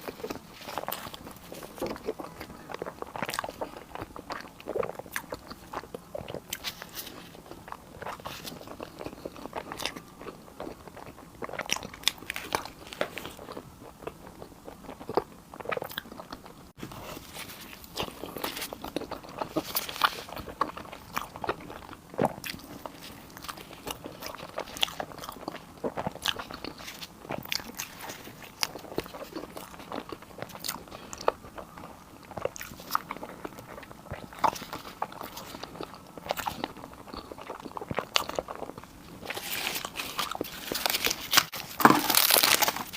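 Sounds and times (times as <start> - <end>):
crunchy chewing: 0.0 - 42.9.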